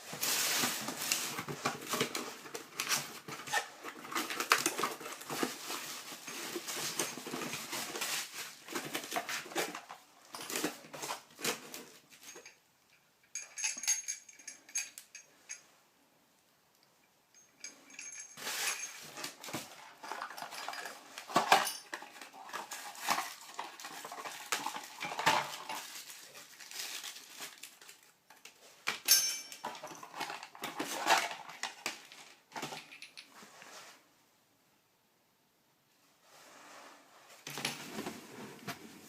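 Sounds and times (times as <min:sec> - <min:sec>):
hard objects clattering and knocking: 0:00.0 - 0:12.6, 0:17.4 - 0:27.5, 0:28.3 - 0:33.4.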